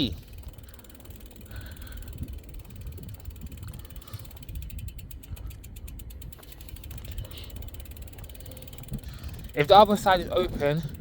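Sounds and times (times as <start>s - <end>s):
bicycle freewheel ticking: 0.0s - 11.0s.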